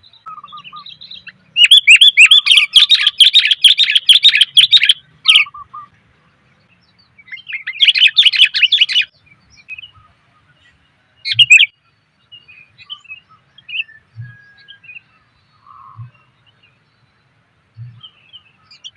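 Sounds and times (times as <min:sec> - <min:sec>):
bird chirping rapidly: 0:00.0 - 0:05.9, 0:06.7 - 0:10.0, 0:11.2 - 0:11.8.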